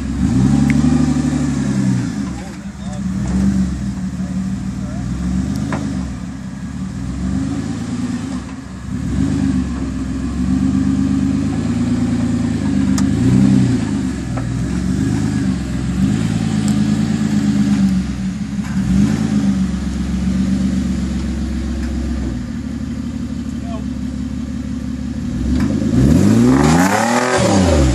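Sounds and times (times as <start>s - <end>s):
engine revving up and down: 0.0s - 21.2s, 25.2s - 27.9s.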